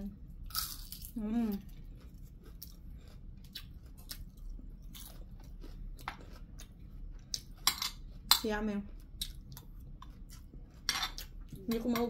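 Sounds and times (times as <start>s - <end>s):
crunchy chewing: 0.4s - 11.8s.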